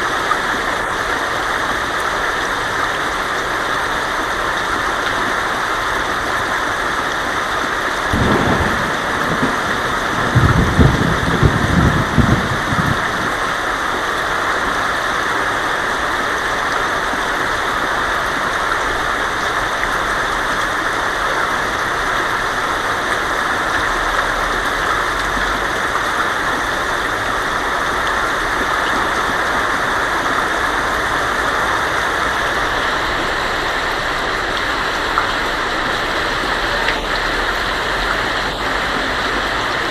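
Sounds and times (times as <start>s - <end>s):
heavy rain on a tin roof: 0.0s - 39.9s
thunder rumbling: 8.1s - 13.8s.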